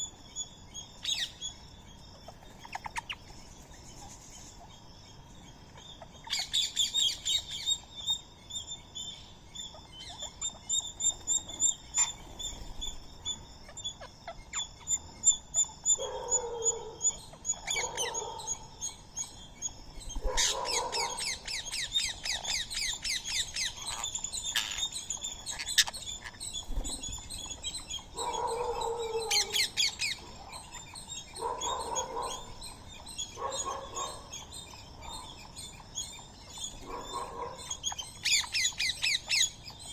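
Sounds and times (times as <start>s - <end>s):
fast high bird chirping: 9.6s - 39.9s.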